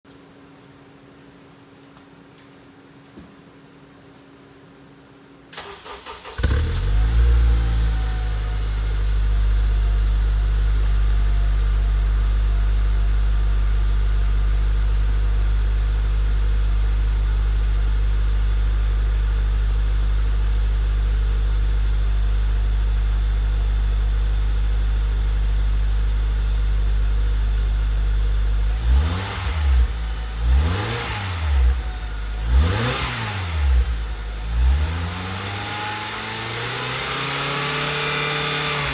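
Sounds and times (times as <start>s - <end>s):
car starter turning: 5.6s - 7.5s
car engine idling and revving: 5.7s - 38.9s.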